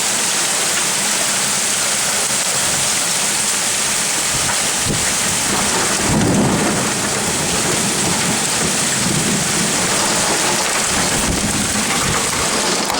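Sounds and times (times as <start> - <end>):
heavy rain: 0.0 - 12.9
thunder rumble: 4.3 - 12.9.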